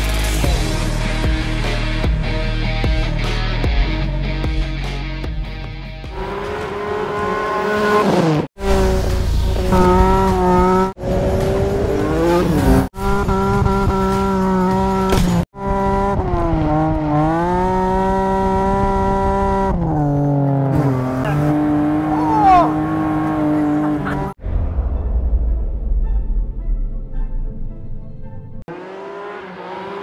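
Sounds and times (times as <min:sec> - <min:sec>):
car engine at high revs: 0:06.1 - 0:24.4, 0:28.7 - 0:30.0.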